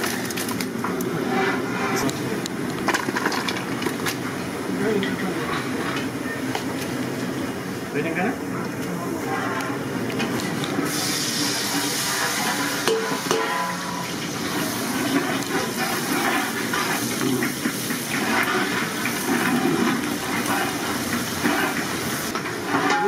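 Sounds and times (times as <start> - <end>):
water pouring and splashing: 10.9 - 22.4.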